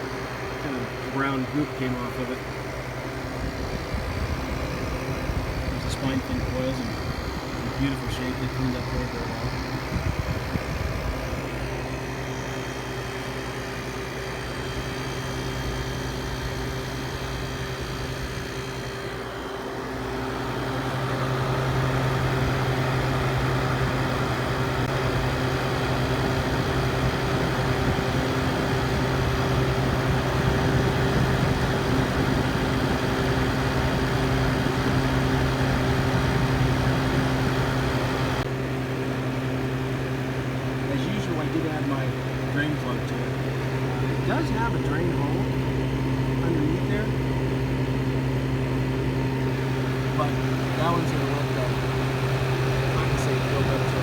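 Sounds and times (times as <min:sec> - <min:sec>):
window air conditioner running: 0:00.0 - 0:54.0.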